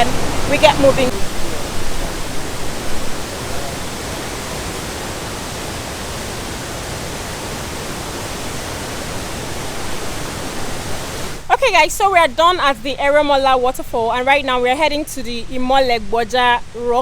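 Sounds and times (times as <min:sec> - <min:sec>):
waterfall pouring: 0:00.0 - 0:11.5.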